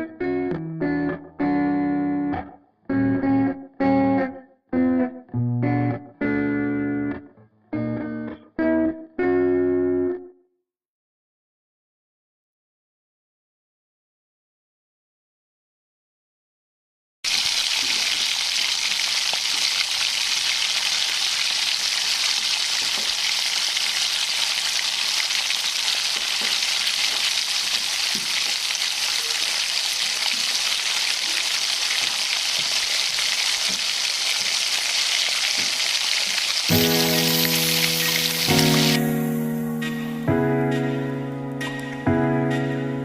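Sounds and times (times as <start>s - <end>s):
food sizzling in hot oil: 17.3s - 39.6s.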